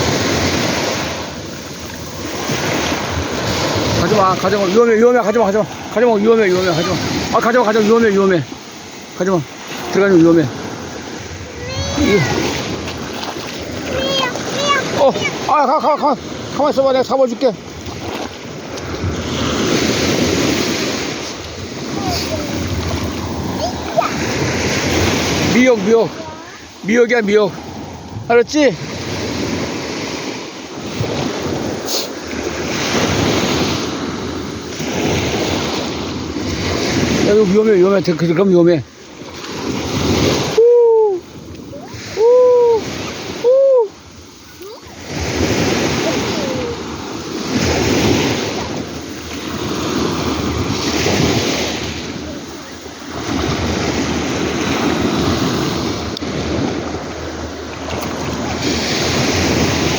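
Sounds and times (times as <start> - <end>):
wind buffeting microphone: 0.0 - 37.6
waves breaking on rocky shore: 0.0 - 59.9.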